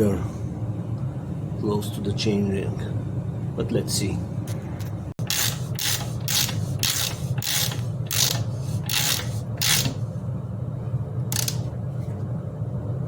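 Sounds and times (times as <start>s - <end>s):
steady low hum: 0.0s - 13.0s
ratchet clicking: 5.2s - 10.0s, 11.3s - 11.7s.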